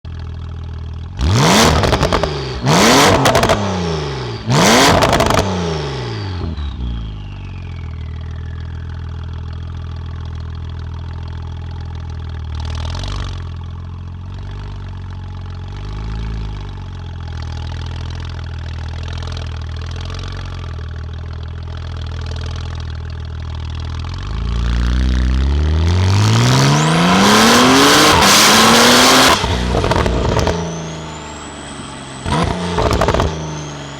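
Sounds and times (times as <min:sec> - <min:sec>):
car engine idling: 0:00.1 - 0:01.2, 0:06.6 - 0:12.7, 0:13.4 - 0:25.9, 0:28.2 - 0:33.9
sports car engine revving: 0:01.1 - 0:06.8, 0:23.9 - 0:33.9
high whine: 0:24.3 - 0:33.9.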